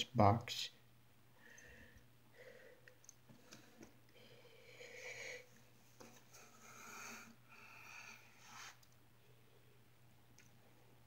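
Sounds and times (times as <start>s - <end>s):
faint breathing: 1.3s - 8.8s.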